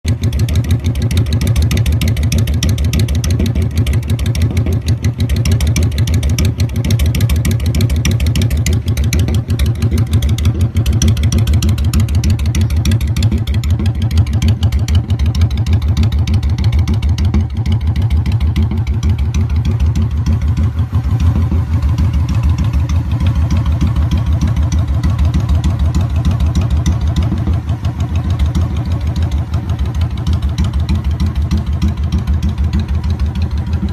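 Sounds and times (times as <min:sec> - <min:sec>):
motorcycle exhaust pulsing: 0:00.0 - 0:33.9.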